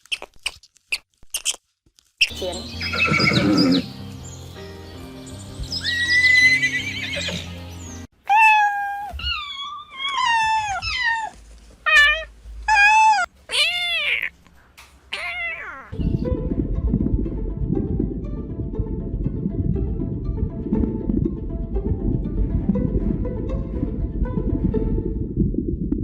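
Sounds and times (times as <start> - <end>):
background music: 2.3 - 8.1, 16.0 - 25.4
cat meowing: 8.3 - 14.4, 15.1 - 16.0.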